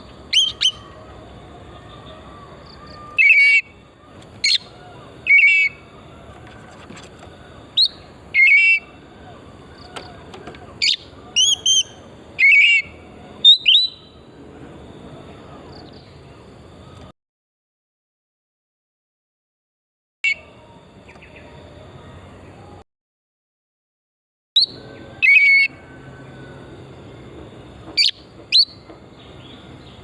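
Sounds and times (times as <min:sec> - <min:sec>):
bird singing whistled phrases: 0:00.0 - 0:01.1, 0:01.8 - 0:05.9, 0:07.8 - 0:09.0, 0:10.8 - 0:14.2.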